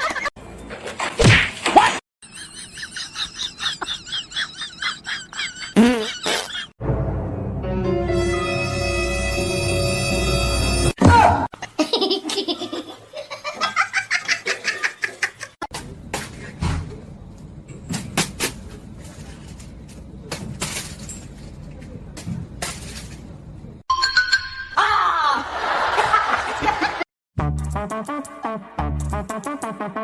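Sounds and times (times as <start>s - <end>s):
person laughing hard: 2.4s - 6.7s
music: 6.8s - 11.0s, 27.4s - 30.0s.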